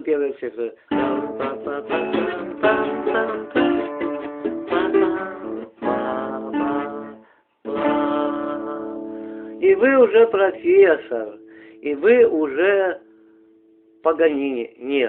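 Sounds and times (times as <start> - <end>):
fingerstyle acoustic guitar: 0.9 - 12.6.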